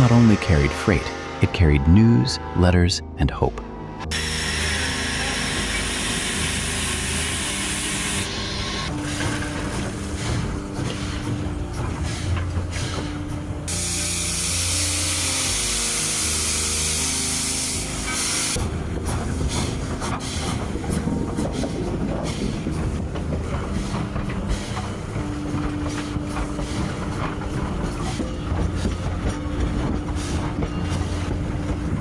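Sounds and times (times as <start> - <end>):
steam hissing: 4.1 - 11.4, 12.1 - 18.6
locomotive clicks and knocks: 18.9 - 32.0.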